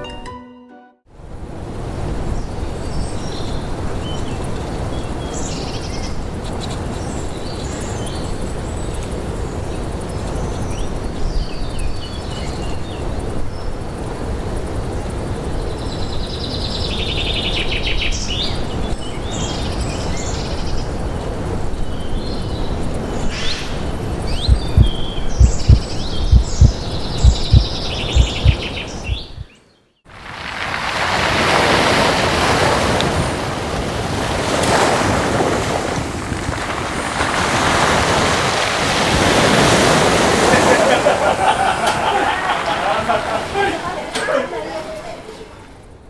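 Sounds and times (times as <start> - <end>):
birds chirping and twittering: 21.8 - 29.8
rapid trilling bird calls: 23.4 - 29.7
rushing background noise: 23.9 - 29.5.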